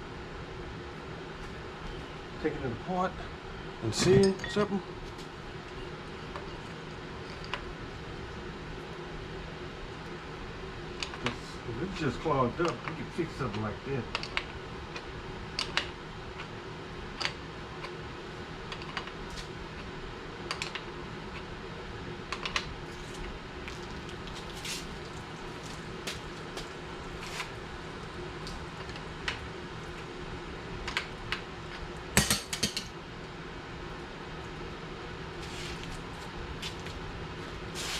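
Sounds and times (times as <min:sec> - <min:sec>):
faint steady hum: 0:00.0 - 0:37.9
clicks and clinks of hard parts: 0:32.2 - 0:32.9.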